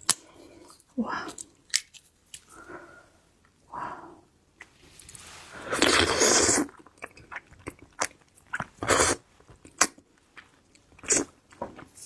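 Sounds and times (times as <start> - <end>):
crab shell cracking and crunching: 1.4 - 2.5.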